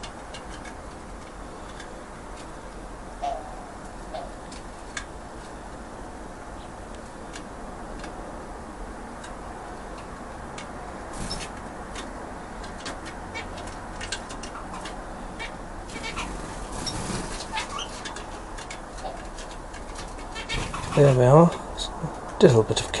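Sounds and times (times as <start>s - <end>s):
birds moving about clicks: 0.0s - 2.6s, 9.2s - 22.5s
faint bird chirps: 3.2s - 4.5s.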